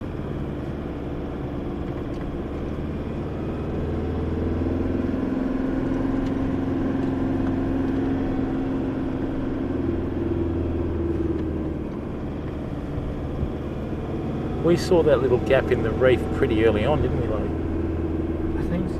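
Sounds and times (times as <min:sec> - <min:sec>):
tyre and road noise: 0:00.0 - 0:18.9
vehicle engine running: 0:00.0 - 0:18.9.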